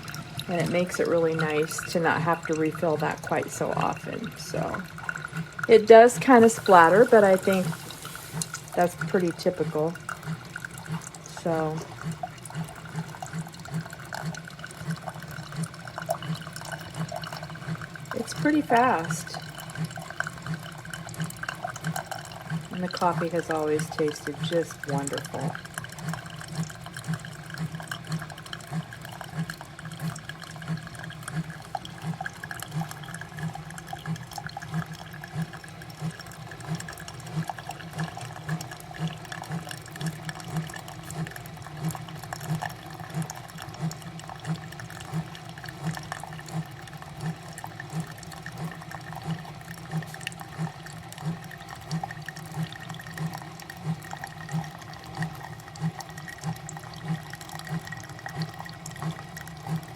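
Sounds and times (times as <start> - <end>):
coffee maker pump pulsing: 0.0 - 59.9
coffee streaming into cup: 0.0 - 59.9.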